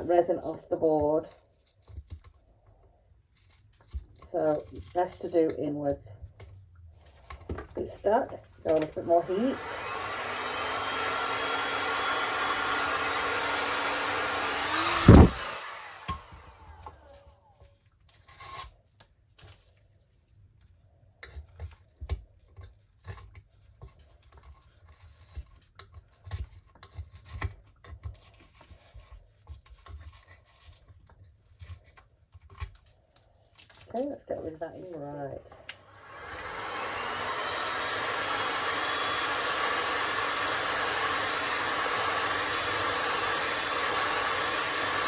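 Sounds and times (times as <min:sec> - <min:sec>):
hand tool scraping: 0:08.8 - 0:17.3, 0:35.7 - 0:45.0
heat gun blowing: 0:08.8 - 0:17.3, 0:35.6 - 0:45.0.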